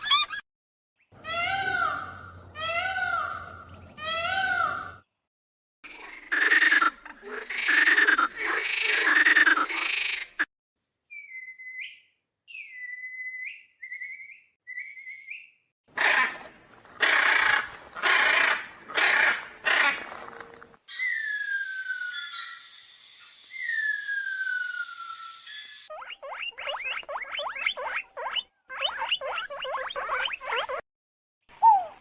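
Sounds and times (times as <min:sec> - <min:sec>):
high chirps: 0:20.9 - 0:30.8
harsh farm animal calls: 0:26.0 - 0:30.8.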